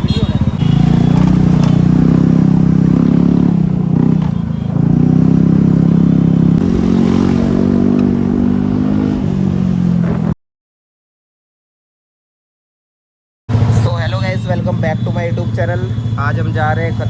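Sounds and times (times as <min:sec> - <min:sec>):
motorcycle engine running: 0:00.0 - 0:10.3, 0:13.5 - 0:17.0.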